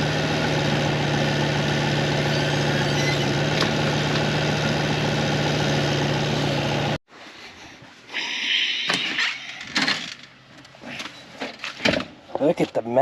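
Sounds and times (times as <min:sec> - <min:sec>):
farm machinery engine idling: 0:00.0 - 0:07.0.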